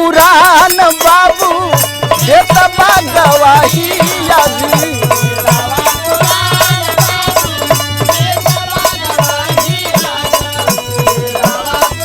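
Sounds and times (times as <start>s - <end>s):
rhythmic metallic rattle: 0.0s - 12.0s
hand drum beat: 1.4s - 12.0s.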